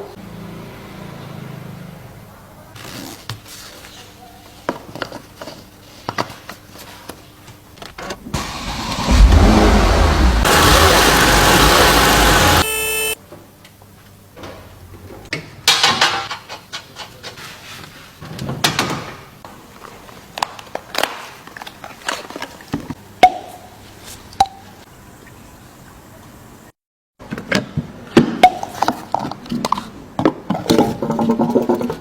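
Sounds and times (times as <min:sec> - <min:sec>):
car engine running: 0:08.4 - 0:13.2.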